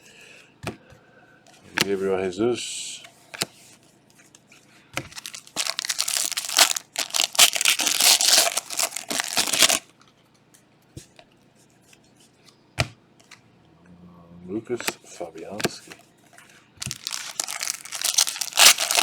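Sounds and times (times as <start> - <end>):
foil wrapper tearing and crinkling: 5.1 - 9.9, 16.8 - 19.0.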